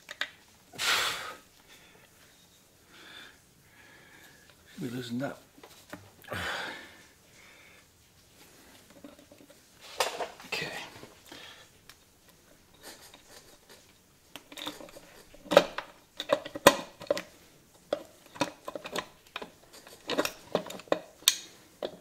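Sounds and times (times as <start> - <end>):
faint handling noises: 4.0 - 6.3, 6.9 - 22.0.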